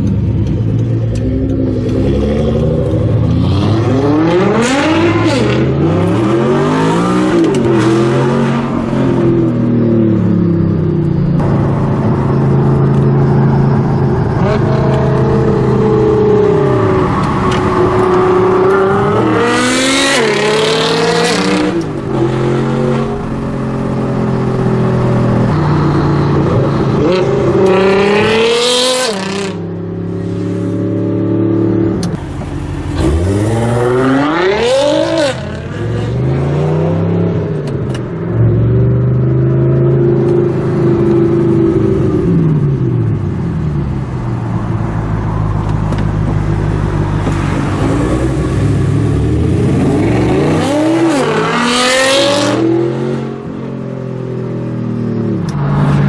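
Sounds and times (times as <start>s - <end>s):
car engine accelerating hard: 11.4s - 56.0s.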